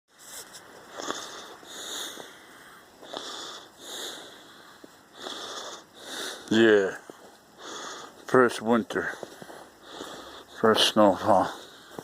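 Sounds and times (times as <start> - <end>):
man breathing hard: 0.8 - 6.6, 7.2 - 8.3, 9.1 - 10.6, 11.5 - 12.0.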